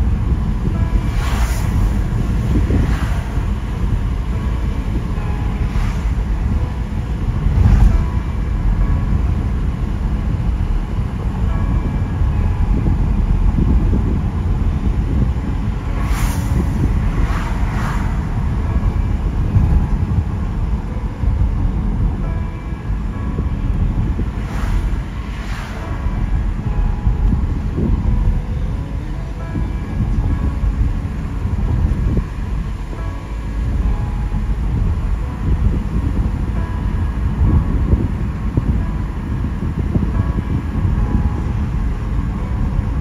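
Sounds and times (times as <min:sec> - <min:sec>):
car driving on wet road: 0:00.0 - 0:43.0
brief swishing sounds: 0:01.0 - 0:03.6, 0:15.9 - 0:18.4, 0:24.4 - 0:26.2.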